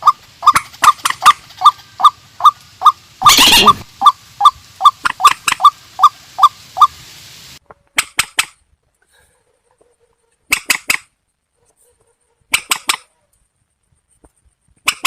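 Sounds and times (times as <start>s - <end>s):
harsh bird screech: 3.2s - 3.9s.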